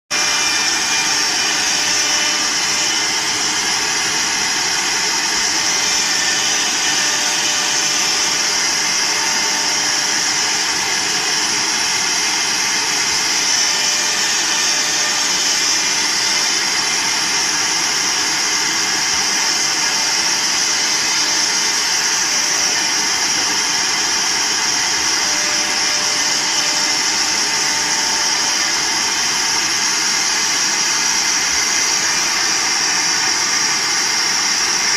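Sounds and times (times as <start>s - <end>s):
cnc router high-pitched hiss: 0.1s - 34.9s.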